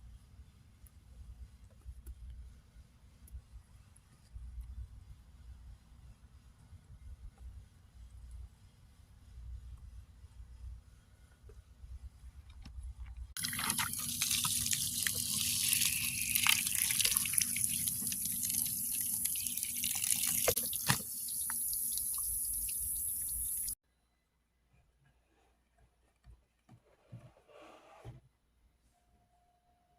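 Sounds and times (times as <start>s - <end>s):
running water splashing: 13.4s - 23.8s
small knocks and drips: 16.4s - 22.3s.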